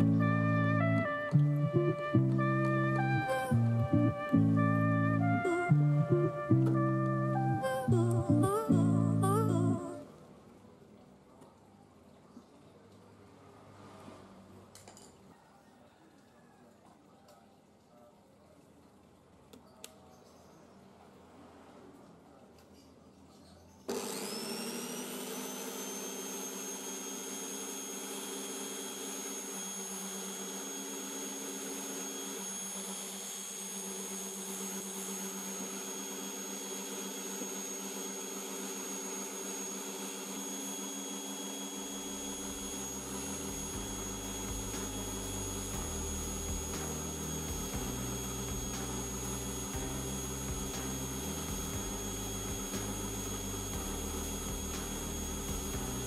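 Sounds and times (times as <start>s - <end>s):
angle grinder motor whining: 0.0s - 9.6s, 23.9s - 56.0s.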